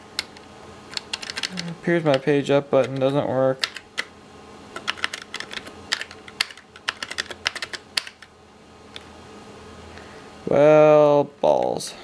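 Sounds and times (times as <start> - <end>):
computer keyboard keys clicking: 0.2 - 2.2, 3.6 - 4.1, 4.8 - 8.3.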